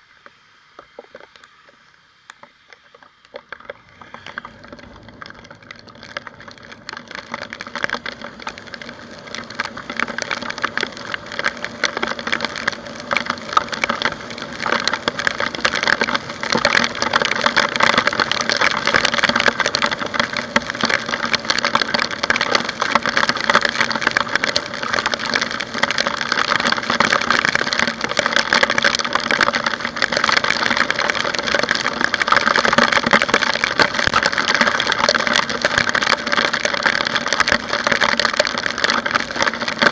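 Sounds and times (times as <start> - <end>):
raindrops crackling on camera: 0.0 - 39.9
faint scooter engine hum: 0.8 - 17.1.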